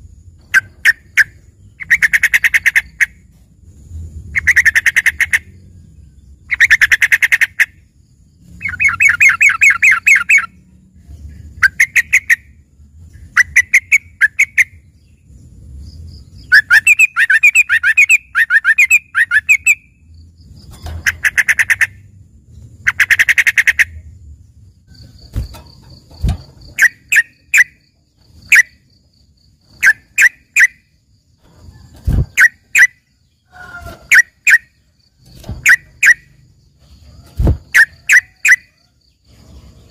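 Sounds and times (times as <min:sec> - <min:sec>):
bird chirps: 0:00.4 - 0:03.3, 0:04.2 - 0:31.1, 0:31.8 - 0:39.9
bulbul singing: 0:04.3 - 0:22.1, 0:24.9 - 0:31.2, 0:32.2 - 0:39.9.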